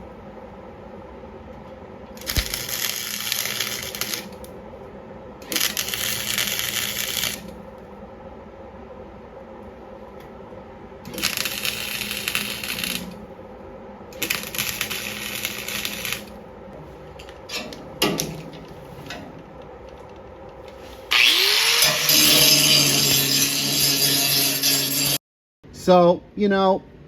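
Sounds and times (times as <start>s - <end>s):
crackling welding on steel: 2.1s - 4.6s, 5.4s - 7.8s, 11.0s - 13.4s, 14.1s - 25.2s
angle grinder running: 21.1s - 25.2s.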